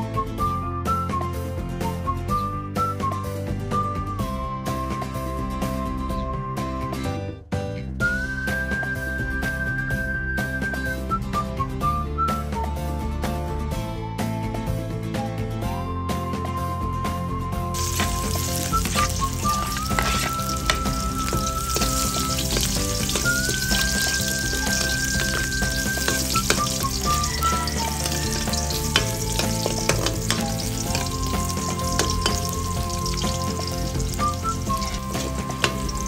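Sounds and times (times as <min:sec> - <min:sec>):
background music: 0:00.0 - 0:36.0
garlic sizzling in hot oil: 0:17.8 - 0:36.0.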